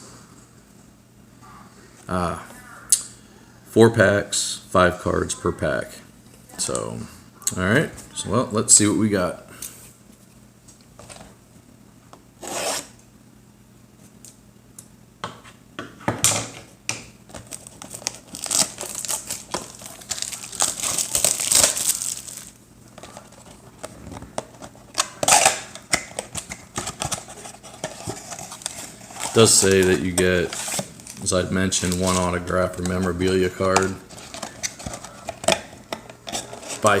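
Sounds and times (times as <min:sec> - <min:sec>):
foil packs crinkling: 0:17.3 - 0:23.9, 0:26.3 - 0:35.7.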